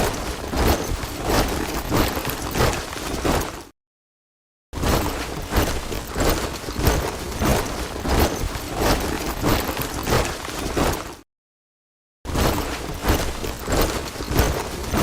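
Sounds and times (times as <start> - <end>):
soldiers marching in step: 0.0 - 3.7, 5.0 - 11.2.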